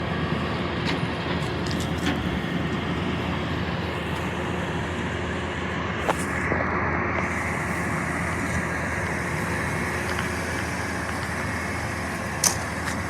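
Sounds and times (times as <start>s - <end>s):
garbage truck engine running: 0.0s - 13.0s.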